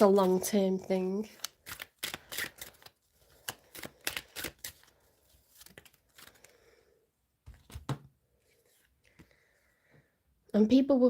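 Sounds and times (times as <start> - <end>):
soft card handling: 0.0 - 6.7
cards shuffling with crisp snaps: 1.3 - 6.6.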